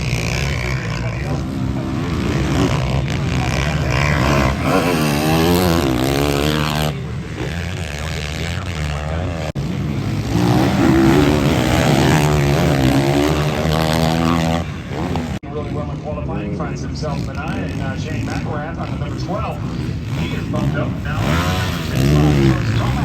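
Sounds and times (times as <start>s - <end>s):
motocross bikes revving: 0.0s - 23.0s.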